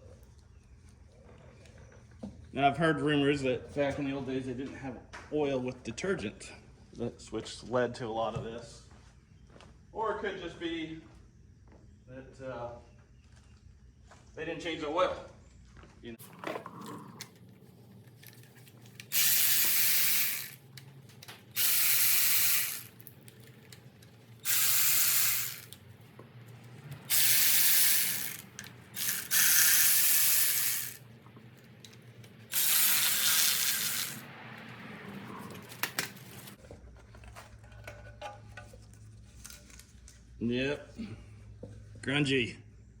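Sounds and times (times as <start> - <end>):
pneumatic air ratchet: 19.0 - 20.7, 21.4 - 25.8, 27.0 - 31.1, 32.5 - 34.3.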